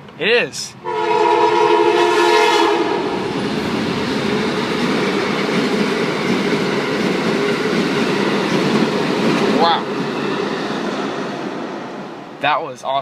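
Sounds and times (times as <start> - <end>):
train horn: 0.8 - 3.3
train wheels rumbling on rails: 2.8 - 12.6.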